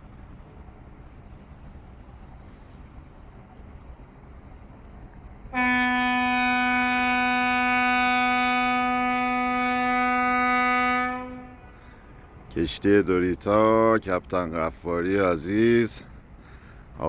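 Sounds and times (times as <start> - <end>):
ship's horn blast: 5.5 - 12.1.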